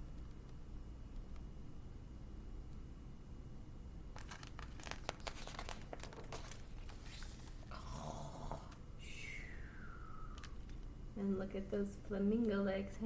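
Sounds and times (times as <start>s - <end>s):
book pages turning: 4.1s - 7.7s.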